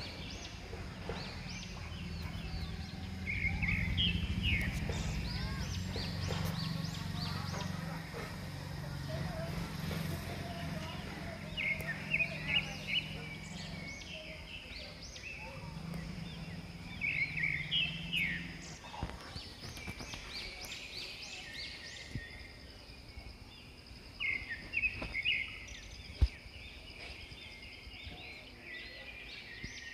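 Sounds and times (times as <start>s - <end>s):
low hum: 0.0s - 20.1s
birds chirping: 0.0s - 29.9s
outdoor background noise: 0.0s - 29.9s.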